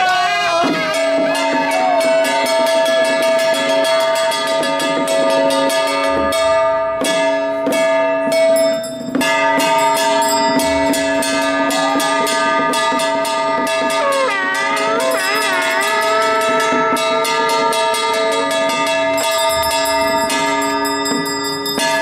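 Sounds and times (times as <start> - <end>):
wavering pitched notes: 0.0 - 22.0
gongs and cymbals struck: 0.2 - 22.0
ringing metal tones: 0.9 - 22.0.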